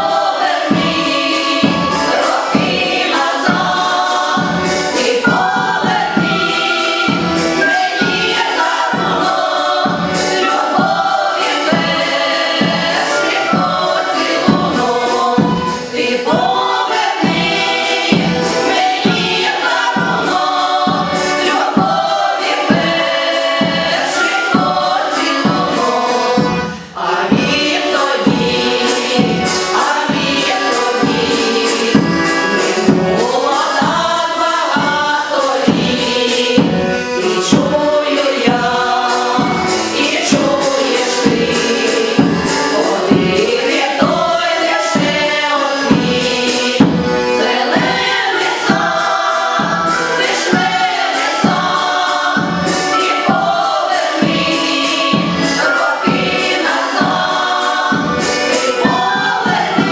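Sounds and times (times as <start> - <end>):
choir singing: 0.0 - 59.9
instrumental backing with beat: 0.0 - 59.9.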